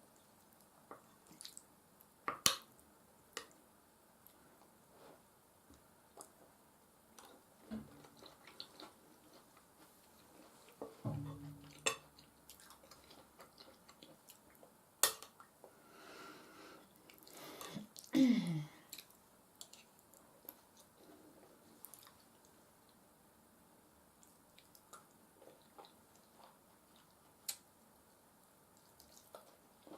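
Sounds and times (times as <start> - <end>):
wet chewing and squishing: 8.0 - 10.8, 11.8 - 14.7, 21.8 - 22.5, 28.8 - 29.9.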